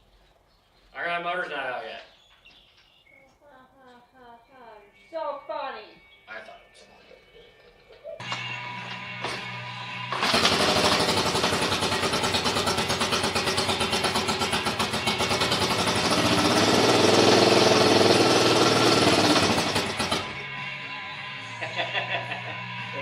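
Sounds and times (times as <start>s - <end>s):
atv engine running: 8.2s - 21.6s.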